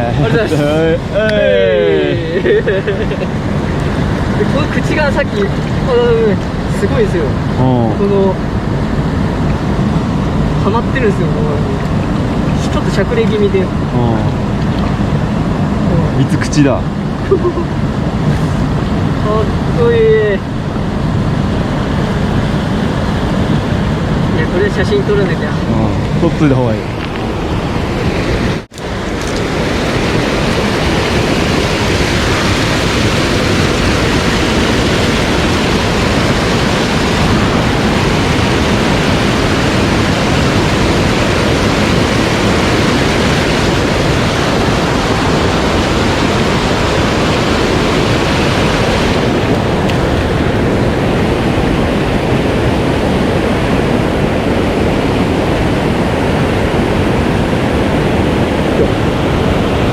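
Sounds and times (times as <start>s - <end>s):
mountain stream rushing: 0.0s - 59.9s.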